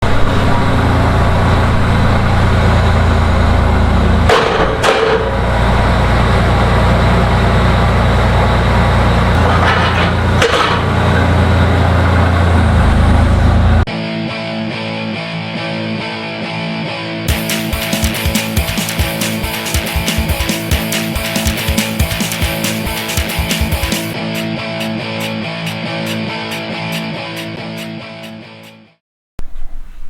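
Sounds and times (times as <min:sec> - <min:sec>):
skid steer engine running: 0:00.0 - 0:13.9, 0:17.3 - 0:27.0
electric guitar music: 0:00.0 - 0:29.0
sharp metal clanks: 0:04.3 - 0:05.4, 0:09.4 - 0:11.4.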